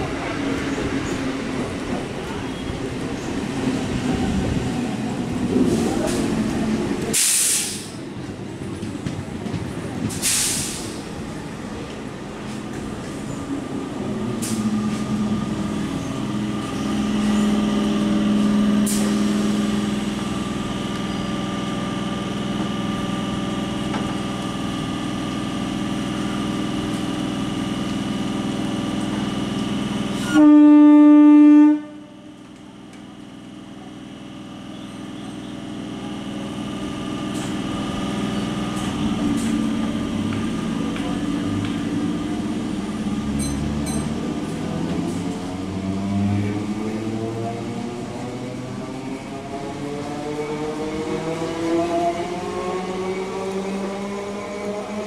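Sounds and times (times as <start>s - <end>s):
train machinery hum: 0.0s - 55.0s
train pulling away rumble: 0.0s - 55.0s
air hiss: 7.1s - 8.0s, 10.2s - 11.0s
train horn blast: 30.2s - 32.3s.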